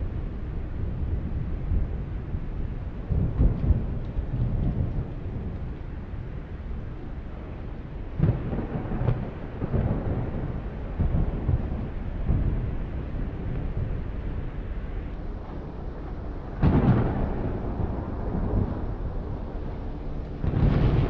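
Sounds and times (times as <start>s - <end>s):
steady rain: 0.0s - 21.0s
rumbling thunder: 2.9s - 5.7s, 8.1s - 14.6s, 15.4s - 21.0s.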